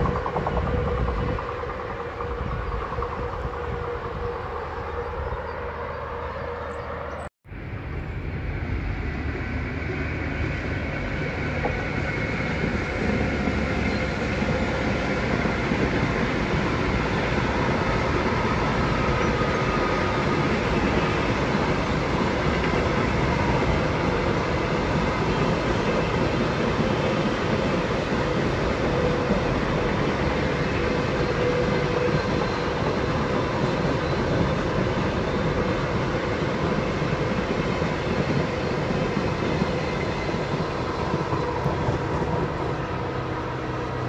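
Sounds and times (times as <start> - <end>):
train wheels rumbling on track: 0.0 - 44.0.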